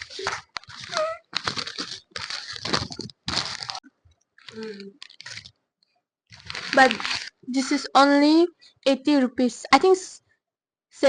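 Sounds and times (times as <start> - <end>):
paper wrapping crinkling and tearing: 0.0 - 3.8, 4.4 - 5.6, 6.3 - 7.9.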